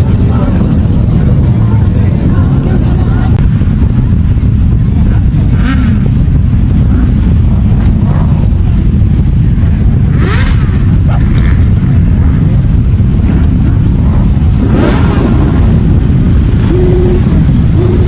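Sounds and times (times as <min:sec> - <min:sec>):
motorcycles riding past: 0:00.0 - 0:03.4, 0:10.0 - 0:18.0
wind rumble on microphone: 0:00.0 - 0:18.0.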